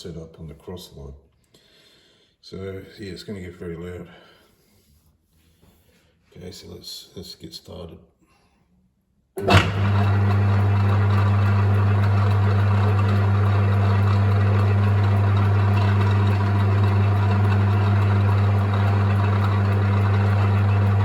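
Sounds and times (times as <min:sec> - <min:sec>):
metal lathe humming and whirring: 0:09.4 - 0:21.0.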